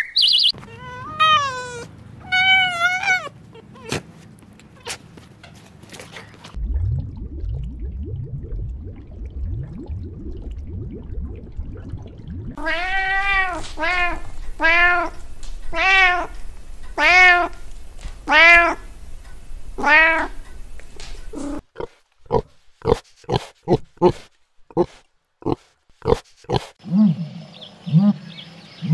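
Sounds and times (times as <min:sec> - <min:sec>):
cat meowing: 0:00.6 - 0:04.0, 0:12.6 - 0:17.6, 0:18.3 - 0:18.8, 0:19.8 - 0:20.4
low rumbling noise: 0:06.6 - 0:21.4.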